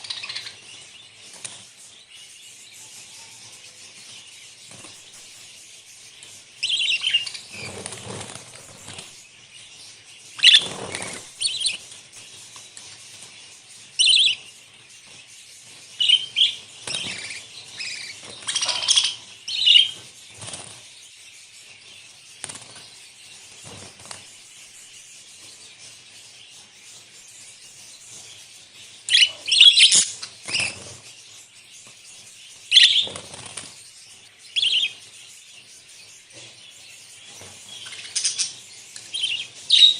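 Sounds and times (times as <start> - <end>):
budgerigars chirping: 0.0 - 39.9
wings flapping: 7.1 - 9.2, 10.4 - 11.9, 20.3 - 20.8, 22.4 - 22.9, 23.6 - 24.4, 32.8 - 33.8.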